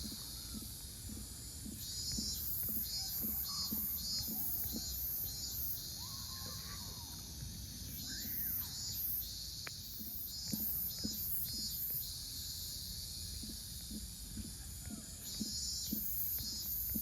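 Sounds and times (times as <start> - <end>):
insects droning: 0.0 - 17.0
pulsing insect trill: 0.0 - 17.0.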